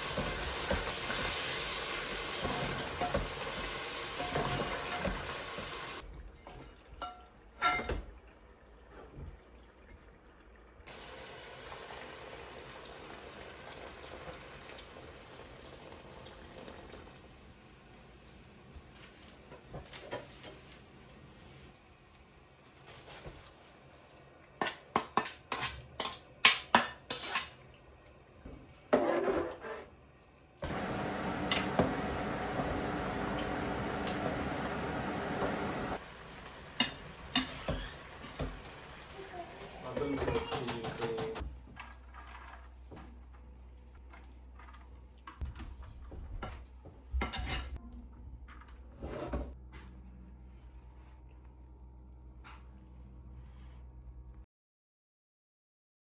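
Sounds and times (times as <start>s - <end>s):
dishes and utensils clinking: 2.4s - 5.7s, 6.4s - 8.1s, 24.6s - 27.6s, 36.8s - 38.5s, 40.0s - 41.4s, 47.2s - 47.8s.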